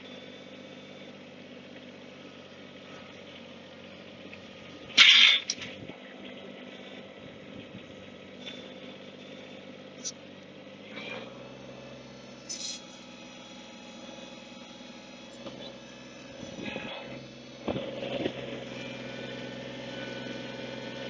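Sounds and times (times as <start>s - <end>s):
chainsaw idling: 6.4s - 21.0s.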